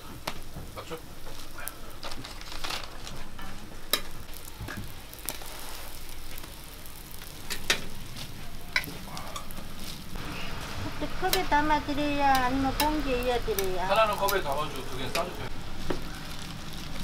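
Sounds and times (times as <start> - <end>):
pancakes sizzling in oil: 0.0 - 17.0
metal tongs clicking on griddle: 3.9 - 4.5, 8.7 - 9.6, 11.3 - 11.7, 12.3 - 15.3.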